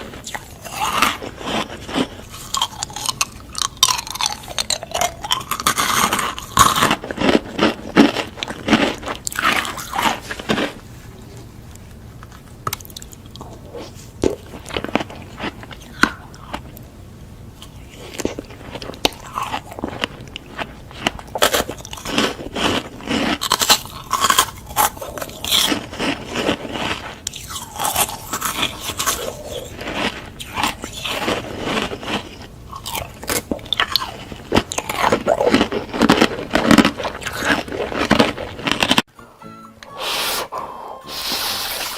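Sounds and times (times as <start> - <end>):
crunchy food being chewed: 0.0 - 39.1.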